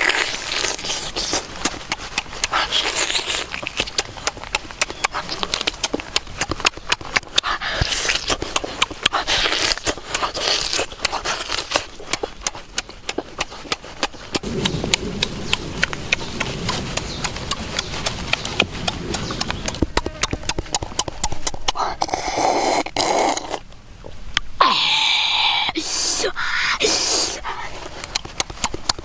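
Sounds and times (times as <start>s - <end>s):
hiss-like noise: 24.5s - 27.6s.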